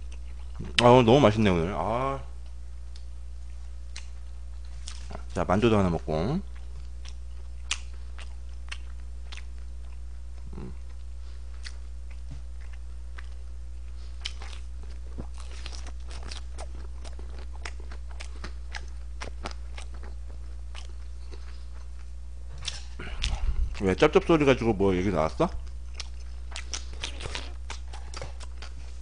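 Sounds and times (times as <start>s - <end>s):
crunchy chewing: 0.0s - 0.9s, 6.5s - 24.3s, 25.1s - 29.0s
low hum: 0.0s - 29.0s.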